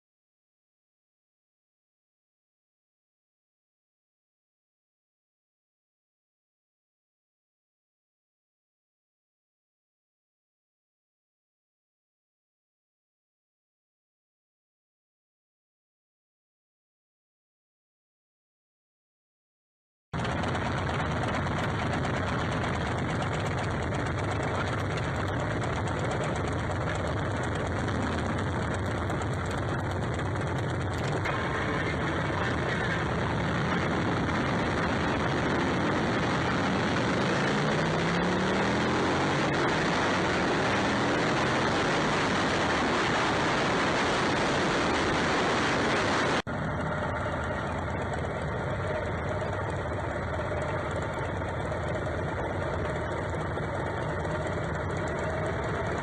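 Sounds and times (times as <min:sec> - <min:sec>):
motorcycle engines running: 0:20.2 - 0:56.0.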